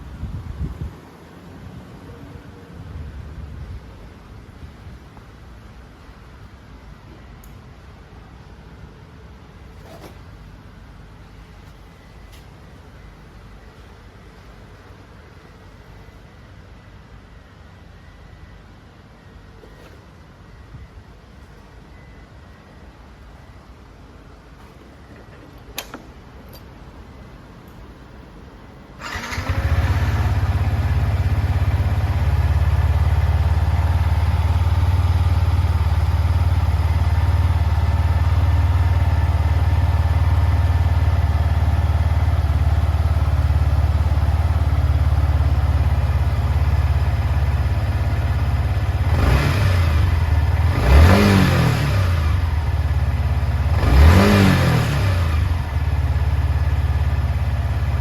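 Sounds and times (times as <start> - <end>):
motorcycle engine idling: 29.0 - 51.3, 52.0 - 53.8, 55.4 - 58.0
motorcycle engine starting: 29.0 - 58.0
engine revving: 49.0 - 52.5, 53.6 - 55.6.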